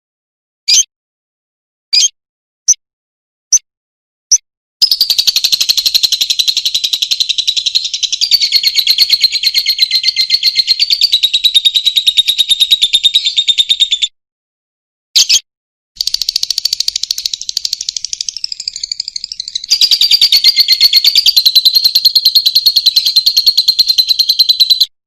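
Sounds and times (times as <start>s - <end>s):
lovebird chirps and trill: 0.7s - 0.9s, 2.0s - 2.8s, 4.8s - 14.2s, 15.2s - 15.4s, 16.0s - 25.0s.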